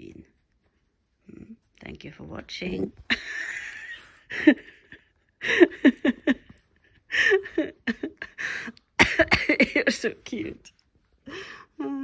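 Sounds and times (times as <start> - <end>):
person chuckling: 3.1 - 9.4.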